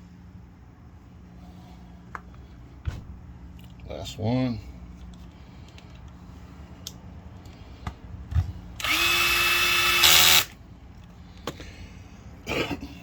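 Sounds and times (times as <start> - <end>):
cordless drill motor whine: 8.8 - 10.6.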